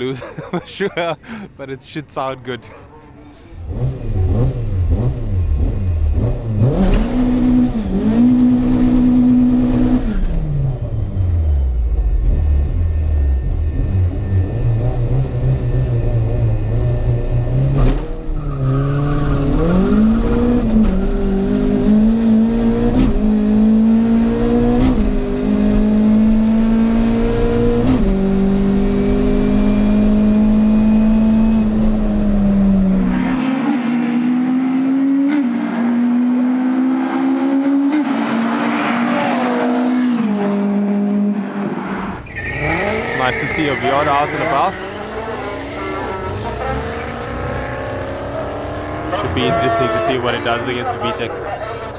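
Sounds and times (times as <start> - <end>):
car engine revving through gears: 3.5 - 51.9.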